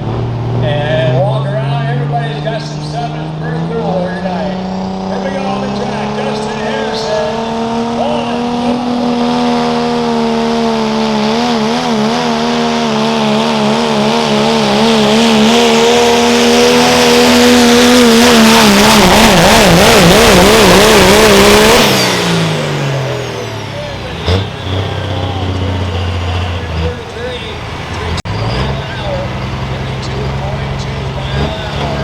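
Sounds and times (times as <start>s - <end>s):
diesel pickup engine at full throttle: 0.0s - 32.0s.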